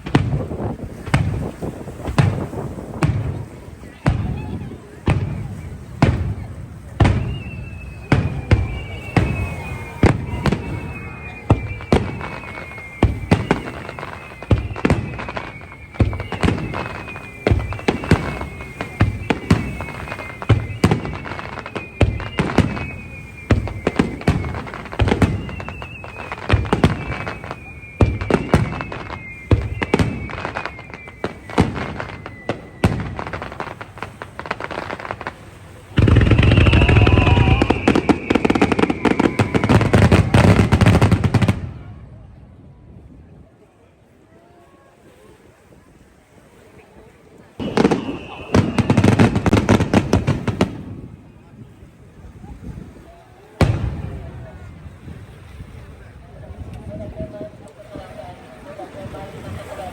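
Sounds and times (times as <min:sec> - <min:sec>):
firework shells booming: 0:00.0 - 0:41.8, 0:47.6 - 0:51.3
falling firework whistles: 0:00.0 - 0:42.0, 0:47.5 - 0:51.8.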